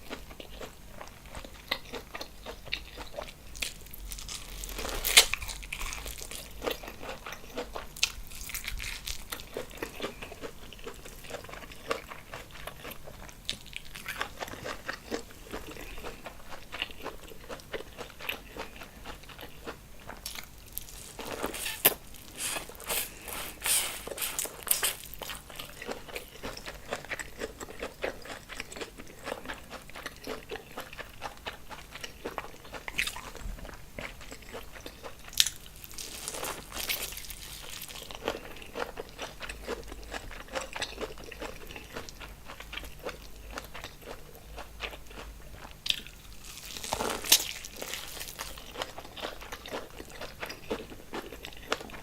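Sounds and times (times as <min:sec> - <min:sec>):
chewing and biting food: 0:00.0 - 0:52.0
slurps: 0:21.4 - 0:24.5.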